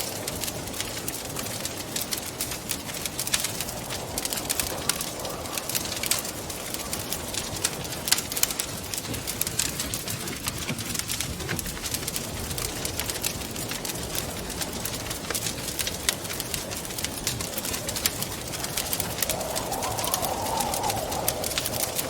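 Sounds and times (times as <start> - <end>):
wood fire crackling and popping: 0.0 - 22.0
wind rushing: 17.6 - 22.0.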